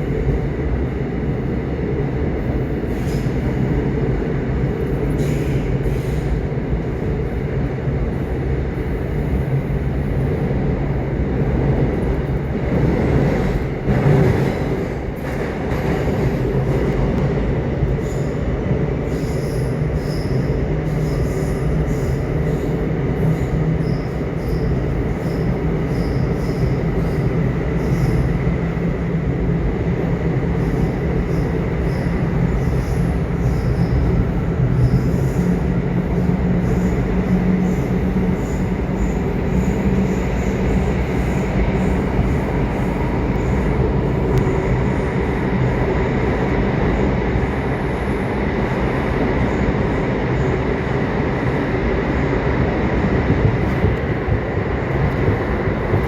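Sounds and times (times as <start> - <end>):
subway train rumbling: 0.0 - 56.0.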